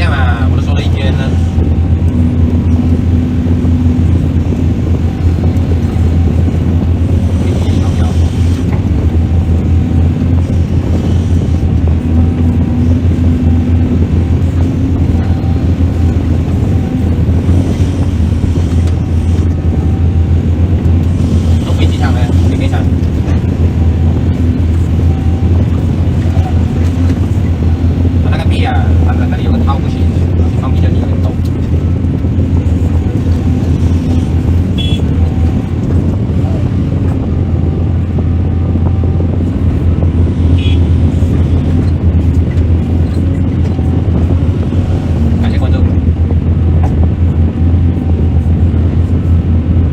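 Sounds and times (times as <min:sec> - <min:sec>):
diesel engine droning: 0:00.0 - 0:49.9.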